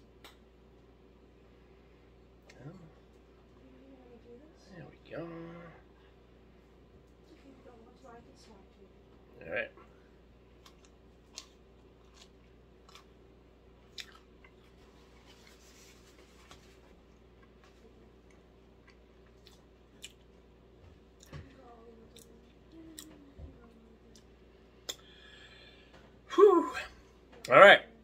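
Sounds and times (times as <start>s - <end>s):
low room hum: 0.0s - 28.0s
person chewing food: 10.5s - 21.4s.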